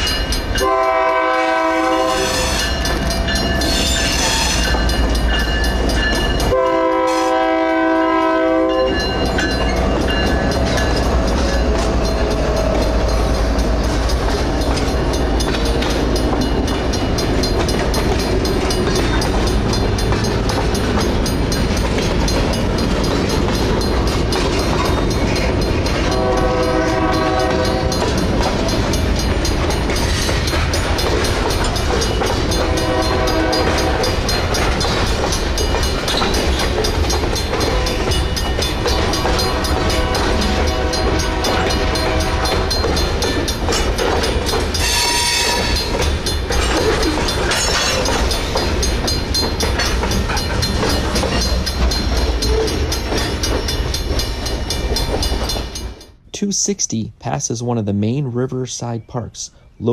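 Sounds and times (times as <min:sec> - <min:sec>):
freight train wheels clattering: 0:00.0 - 0:56.3
wheel squeals: 0:02.1 - 0:06.4.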